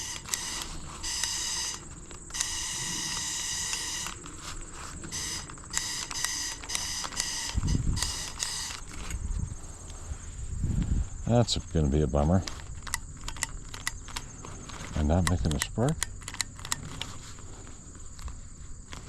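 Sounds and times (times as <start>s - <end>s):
torch high buzzing bursts: 0.0s - 4.2s, 5.1s - 8.8s.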